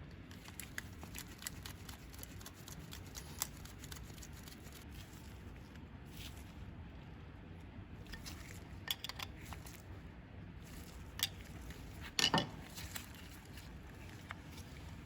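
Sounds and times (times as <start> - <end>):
small hard parts clicking and clinking: 12.2 - 13.0.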